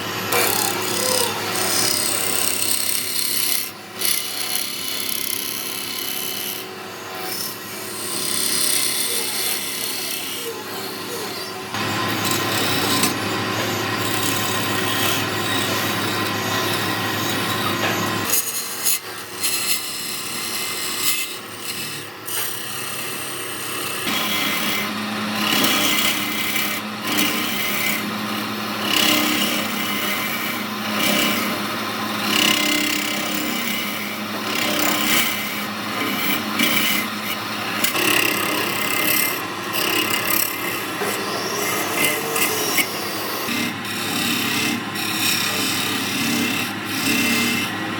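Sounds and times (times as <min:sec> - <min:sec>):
tool scraping spinning wood: 0:00.0 - 0:47.9
wood lathe running: 0:00.0 - 0:47.9.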